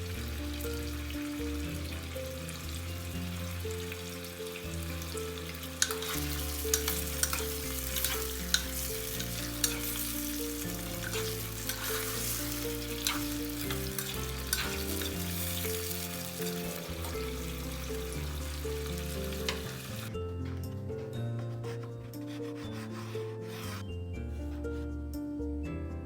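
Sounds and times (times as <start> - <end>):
oil sizzling in a pot: 0.0 - 20.1
utensil clicking against pot: 5.8 - 10.0.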